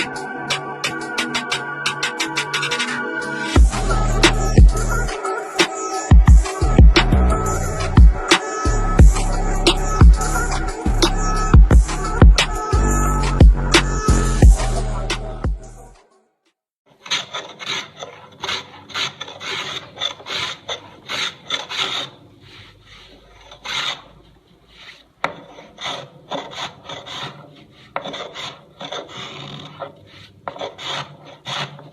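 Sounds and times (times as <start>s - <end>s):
hand tool scraping wood: 16.9s - 31.9s.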